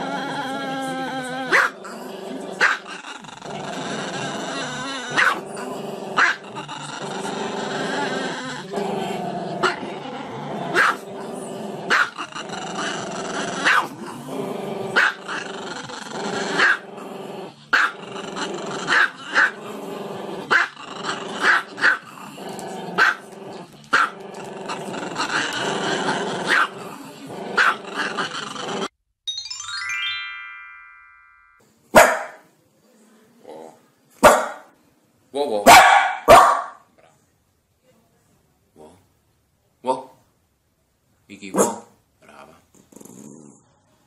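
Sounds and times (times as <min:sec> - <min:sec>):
dog barking: 0:01.5 - 0:01.8, 0:05.2 - 0:05.4, 0:06.2 - 0:06.4, 0:10.7 - 0:11.0, 0:11.9 - 0:12.1, 0:13.6 - 0:13.9, 0:15.0 - 0:15.2, 0:17.8 - 0:18.0, 0:23.0 - 0:23.2, 0:26.5 - 0:26.7, 0:27.6 - 0:27.8, 0:32.0 - 0:32.4, 0:34.2 - 0:34.7, 0:35.6 - 0:36.9, 0:41.5 - 0:42.0
music: 0:29.3 - 0:31.6.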